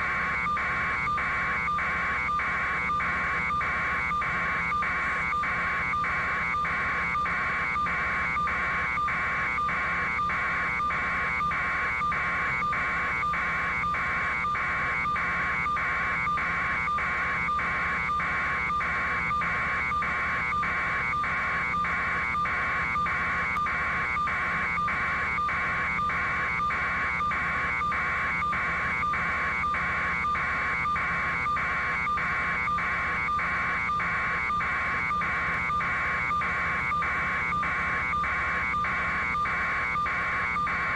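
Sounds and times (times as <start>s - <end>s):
electronic warning buzzer pulsing: 0.0s - 40.9s.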